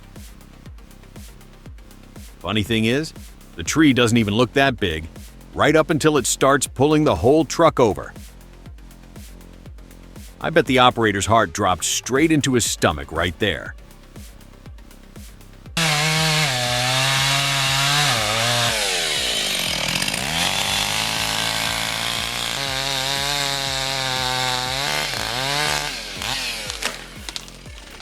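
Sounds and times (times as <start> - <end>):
chainsaw cutting: 15.8 - 28.0.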